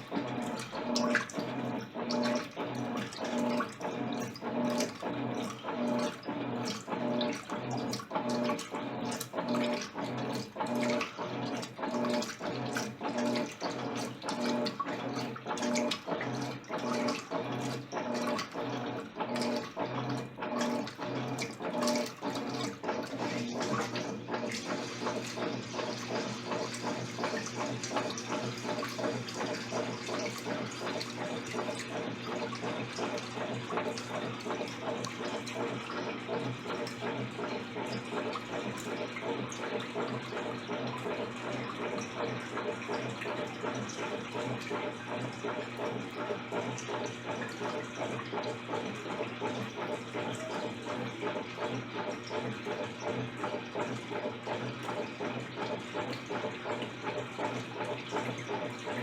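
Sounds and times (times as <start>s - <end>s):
washing machine motor humming: 0.0s - 59.0s
water sloshing: 8.4s - 46.0s.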